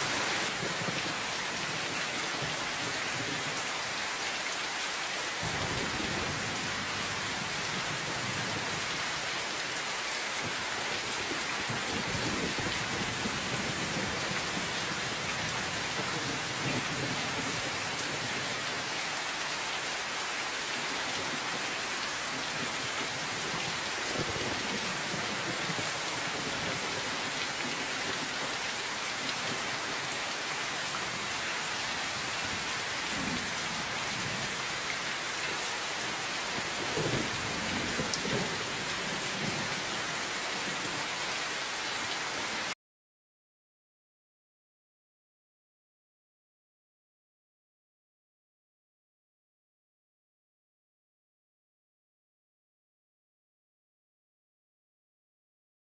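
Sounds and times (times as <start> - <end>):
steady rain falling: 0.0 - 42.8.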